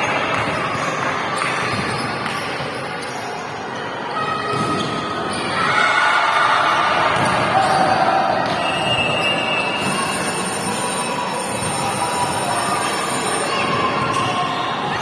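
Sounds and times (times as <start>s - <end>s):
echoing hall activity: 0.0s - 15.0s
volleyballs struck and bouncing: 6.9s - 8.7s.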